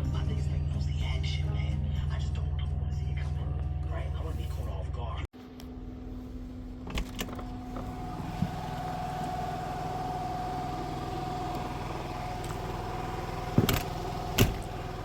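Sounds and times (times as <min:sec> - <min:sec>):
vehicle engine idling: 0:05.4 - 0:15.0.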